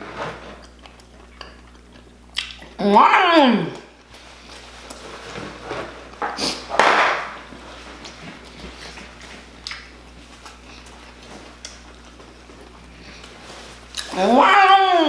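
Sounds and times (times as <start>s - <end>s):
chewing food: 0.5s - 2.8s, 8.0s - 14.2s
wet mouth clicks: 0.7s - 2.8s.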